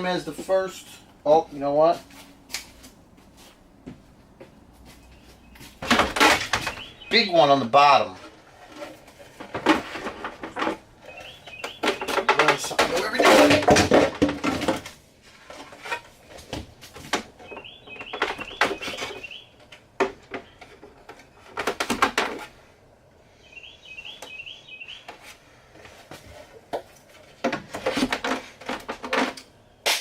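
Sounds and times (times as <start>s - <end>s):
bird chirping: 0.0s - 7.9s, 11.0s - 13.4s, 17.4s - 19.6s, 23.4s - 25.2s.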